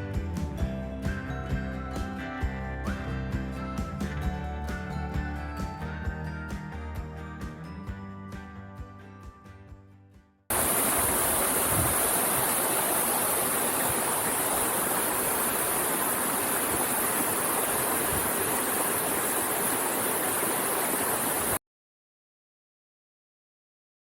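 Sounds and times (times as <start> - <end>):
waterfall rushing: 10.5 - 21.6.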